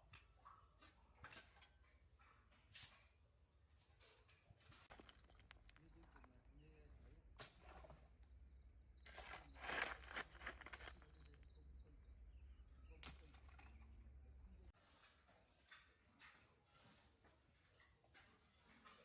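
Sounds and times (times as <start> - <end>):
rustling handling noises: 4.4 - 6.3, 9.1 - 11.4.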